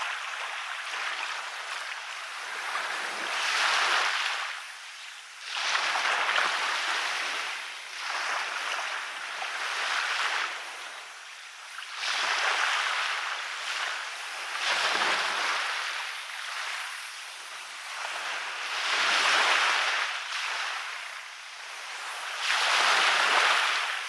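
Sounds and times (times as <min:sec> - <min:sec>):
small waves breaking on beach: 0:00.0 - 0:24.0.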